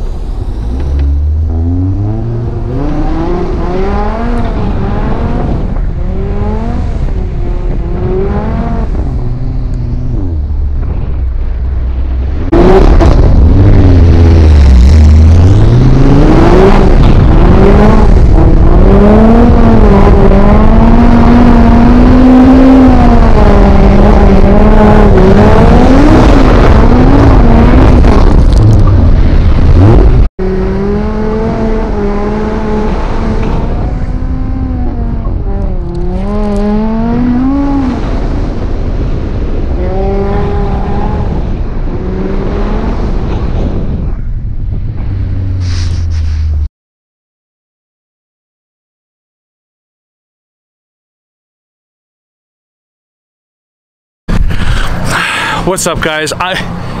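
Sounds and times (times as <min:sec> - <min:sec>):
car engine revving: 0:00.0 - 0:46.7.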